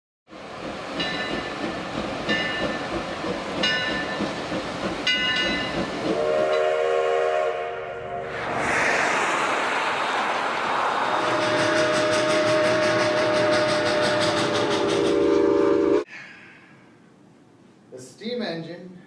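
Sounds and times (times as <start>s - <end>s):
train rumbling on rails: 0.3s - 16.1s
train horn blast: 6.1s - 8.3s, 11.2s - 16.1s.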